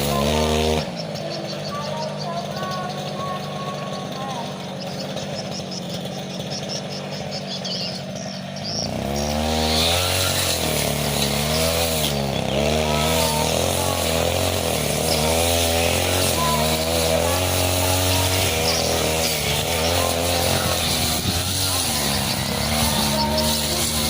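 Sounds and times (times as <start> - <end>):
brush cutter engine revving: 0.0 - 24.0.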